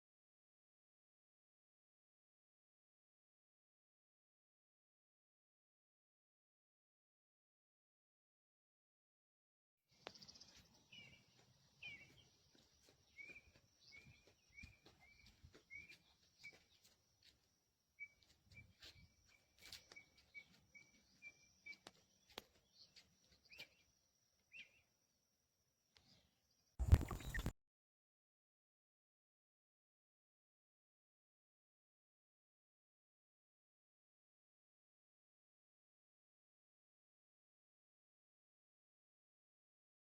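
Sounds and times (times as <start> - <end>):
bird chirping: 9.9 - 25.1, 25.9 - 27.5.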